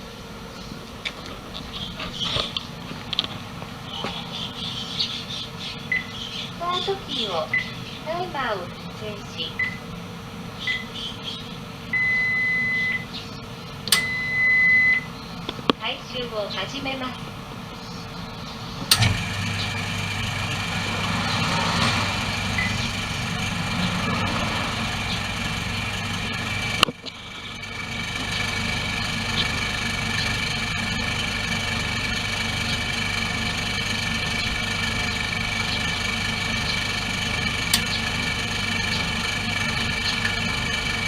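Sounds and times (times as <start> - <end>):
car engine idling: 16.8 - 41.0
high-pitched whine: 18.9 - 41.0.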